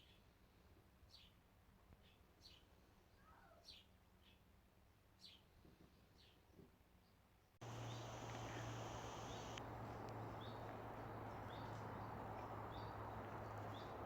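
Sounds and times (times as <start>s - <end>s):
low hum: 7.6s - 14.0s
small bird chirping: 7.6s - 14.0s.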